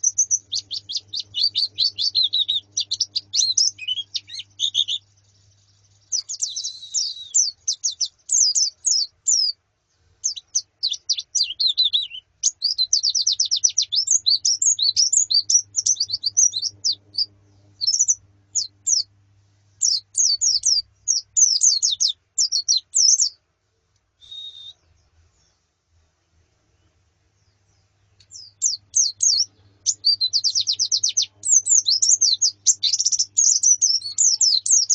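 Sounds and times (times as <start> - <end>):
white-eyes chirping and twittering: 0.0 - 5.0, 28.4 - 34.9.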